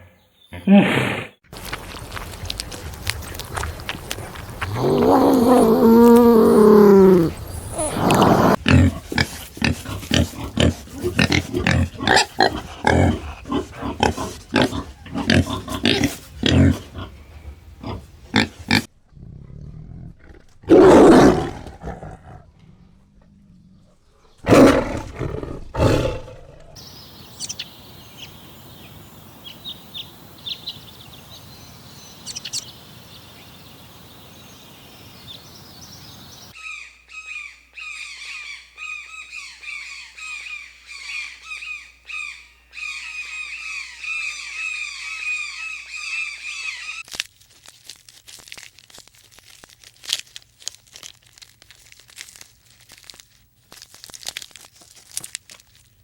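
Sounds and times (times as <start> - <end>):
birds chirping: 3.2 - 18.9, 22.7 - 47.0.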